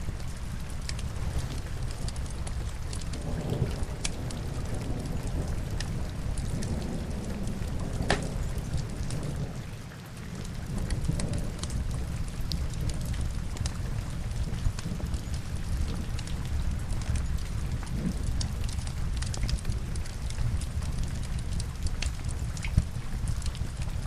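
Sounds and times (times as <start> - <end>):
burning logs crackling: 0.0 - 24.0
rain hiss: 0.0 - 24.0.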